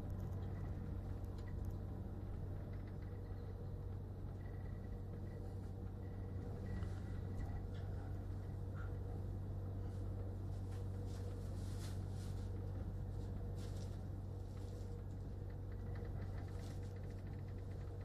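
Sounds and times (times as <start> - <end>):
faint steady tone: 0.0 - 10.5.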